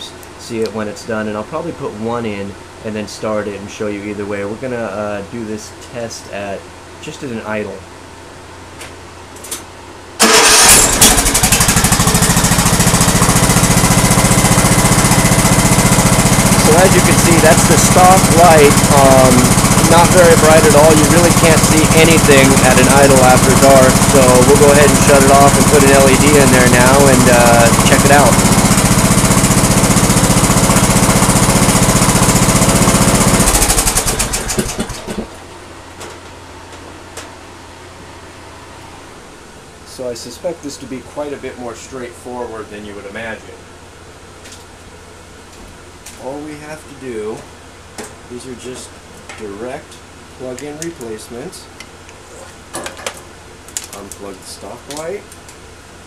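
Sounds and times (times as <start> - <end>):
lawn tractor engine idling: 10.2 - 35.3
lawn tractor engine starting: 10.2 - 35.4.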